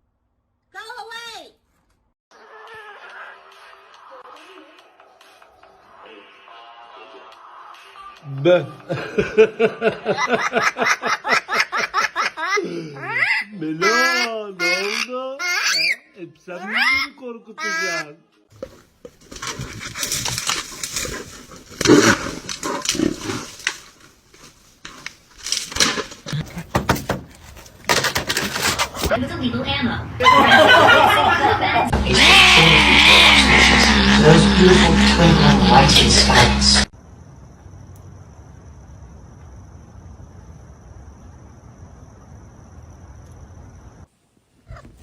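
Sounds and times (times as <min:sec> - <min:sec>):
low rumble and hiss: 0:37.0 - 0:44.6
pet animal calling: 0:44.7 - 0:45.0.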